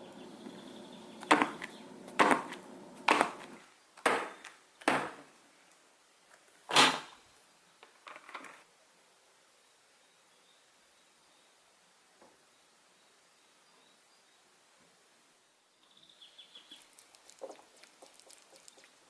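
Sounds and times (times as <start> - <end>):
faint steady hum: 0.0 - 6.6.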